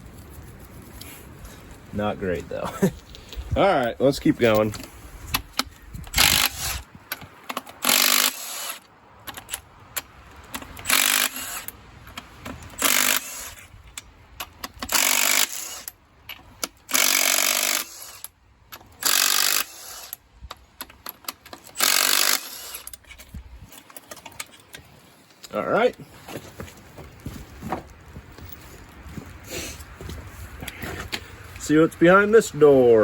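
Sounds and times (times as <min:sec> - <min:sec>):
power tool bursts: 0:06.1 - 0:06.8, 0:07.8 - 0:08.8, 0:10.8 - 0:11.7, 0:12.8 - 0:13.6, 0:14.9 - 0:15.9, 0:16.9 - 0:18.3, 0:19.0 - 0:20.2, 0:21.8 - 0:22.9
clinking of tools and parts: 0:20.4 - 0:26.4.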